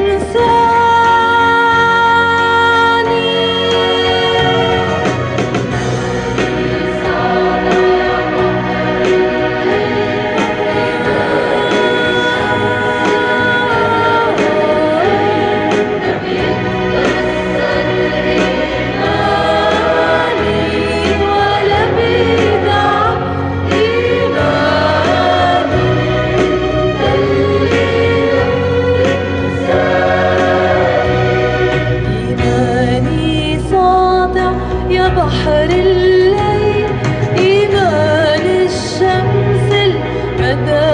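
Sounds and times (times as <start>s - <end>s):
choir singing a hymn: 0.0s - 33.6s
sustained instrumental accompaniment: 0.0s - 40.9s.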